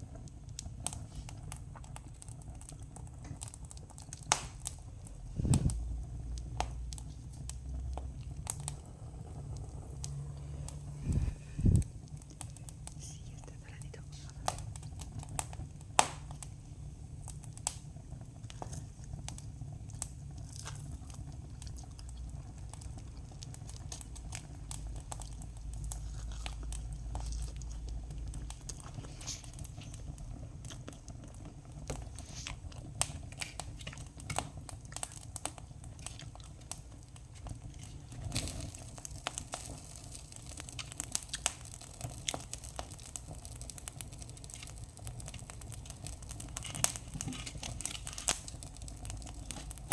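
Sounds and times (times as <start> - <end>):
campfire crackling: 0.0 - 49.9
sharp fire pops: 0.2 - 13.5, 14.2 - 49.9
low rumble: 5.1 - 14.4.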